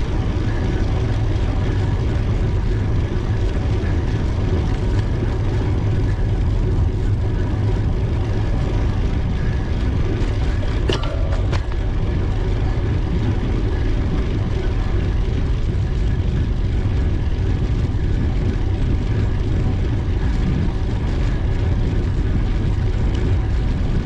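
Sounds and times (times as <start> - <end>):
wind rumble on microphone: 0.0 - 24.0.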